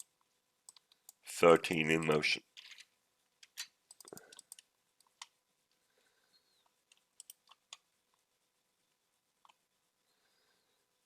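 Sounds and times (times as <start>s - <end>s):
faint small clicks and taps: 0.0s - 1.2s.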